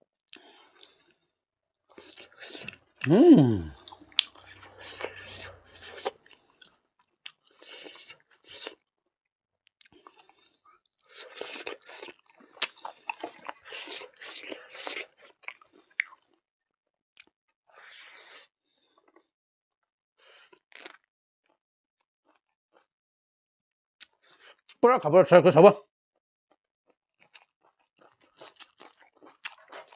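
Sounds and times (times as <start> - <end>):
person chewing crunchy food: 0.3 - 1.2, 1.9 - 8.9, 9.7 - 16.4, 20.2 - 21.1, 26.9 - 29.9
wet mouth sounds: 2.0 - 6.2.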